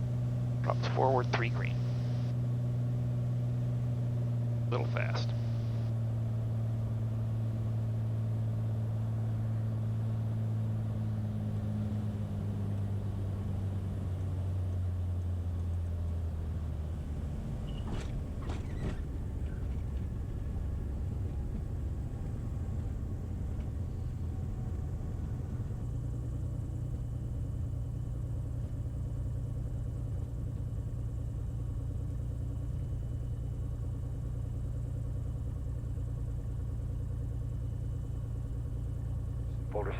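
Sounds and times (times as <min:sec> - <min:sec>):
propeller plane engine from cabin: 0:00.0 - 0:39.9.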